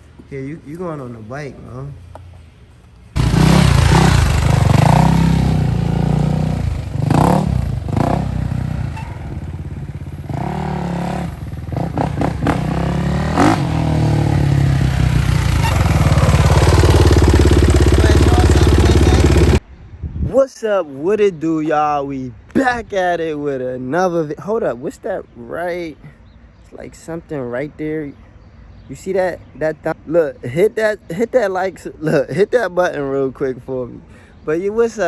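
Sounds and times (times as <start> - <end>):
dirt bike engine revving: 3.2 - 19.6.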